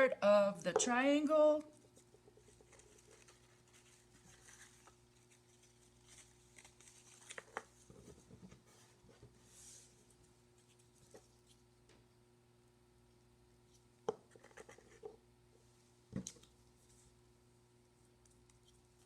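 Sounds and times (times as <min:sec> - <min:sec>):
paper handling: 0:02.0 - 0:09.3.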